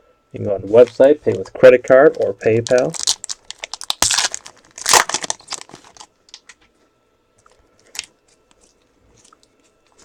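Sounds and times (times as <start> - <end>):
card wrapper crinkling: 0.7 - 6.5.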